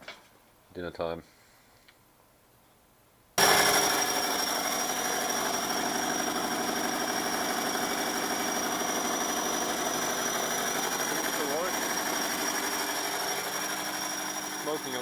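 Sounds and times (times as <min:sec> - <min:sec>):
diesel generator engine running: 0:03.4 - 0:15.0.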